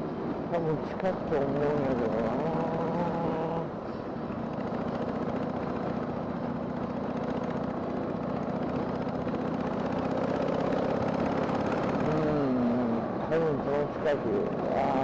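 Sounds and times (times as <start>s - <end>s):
wind and road noise: 0.0s - 15.0s
motorcycle engine running: 1.5s - 13.0s.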